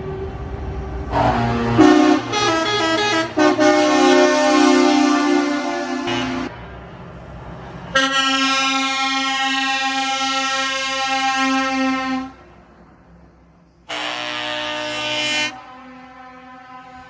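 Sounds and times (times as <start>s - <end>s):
truck engine rumble: 0.0s - 17.0s
truck air horn blasts: 1.1s - 6.5s, 8.0s - 12.4s, 13.9s - 17.0s.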